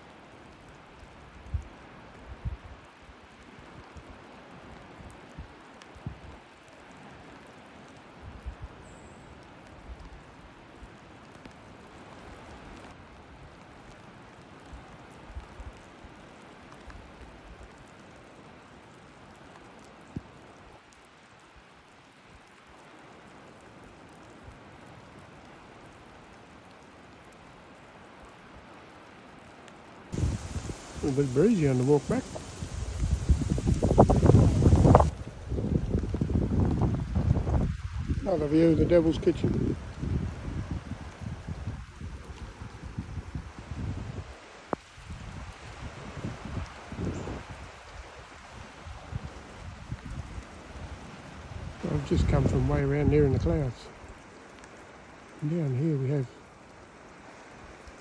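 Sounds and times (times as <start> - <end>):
light rain falling: 0.0 - 58.0
rain hissing: 30.0 - 43.4, 44.2 - 58.0
wind buffeting microphone: 30.2 - 38.4, 51.4 - 53.8.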